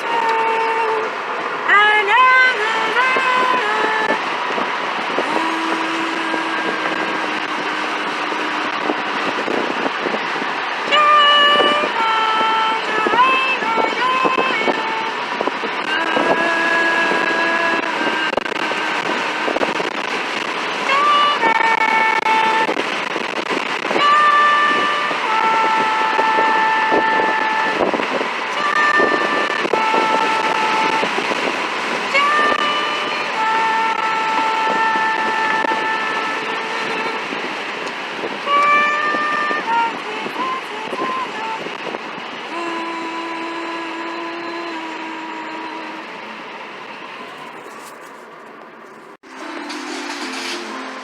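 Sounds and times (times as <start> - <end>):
vehicle road and engine noise: 0.0 - 51.0
two-tone siren: 10.9 - 15.2, 15.8 - 37.4, 38.5 - 41.8, 49.2 - 51.0.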